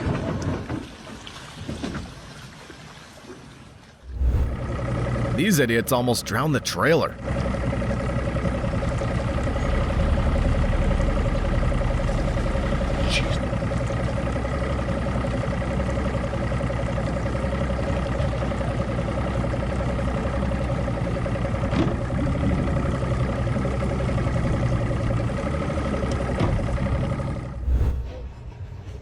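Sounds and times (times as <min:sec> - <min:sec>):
engine running steadily: 0:04.0 - 0:28.8
constant whine: 0:04.1 - 0:15.3.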